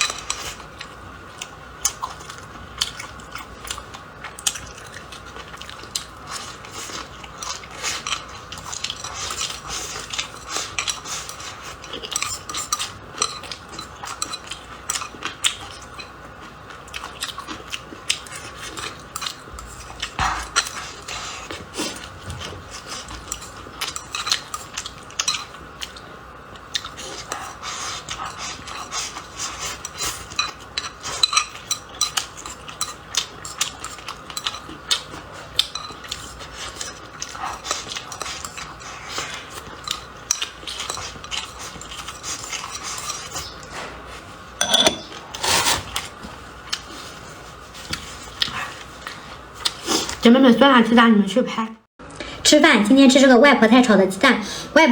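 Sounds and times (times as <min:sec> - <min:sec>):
utensils scraping a bowl: 0:44.6 - 0:46.1.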